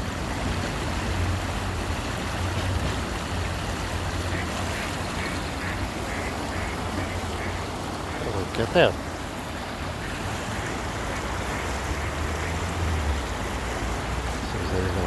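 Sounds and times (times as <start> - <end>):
duck quacking: 4.3 - 8.2.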